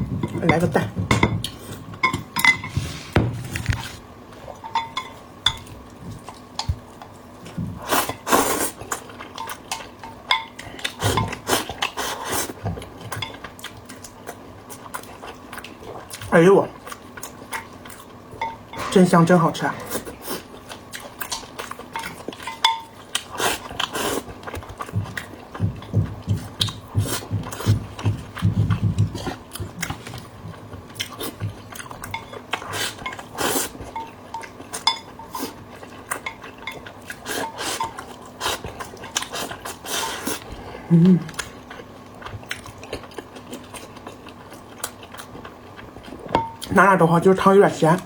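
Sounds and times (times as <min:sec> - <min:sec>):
utensils clinking against bowl: 0:00.1 - 0:02.8, 0:04.6 - 0:05.8, 0:09.4 - 0:11.4, 0:18.4 - 0:19.0, 0:21.3 - 0:23.0, 0:32.0 - 0:38.2
close chewing and mouth sounds: 0:03.8 - 0:48.0
person humming: 0:40.8 - 0:41.4.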